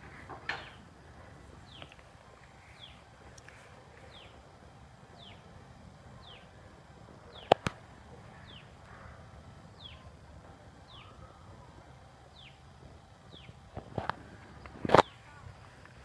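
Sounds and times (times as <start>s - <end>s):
sharp clicks: 7.4s - 7.8s
bird high downward call: 10.9s - 11.5s.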